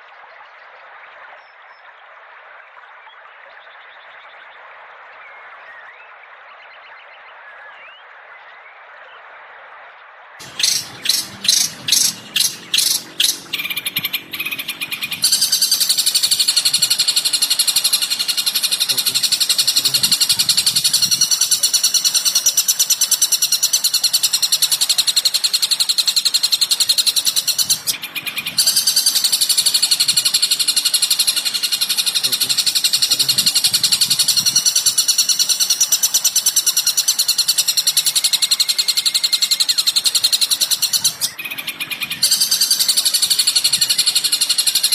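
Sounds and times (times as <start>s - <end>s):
bird call notes: 10.4s - 44.9s
rapid high-pitched bird trill: 10.4s - 44.9s.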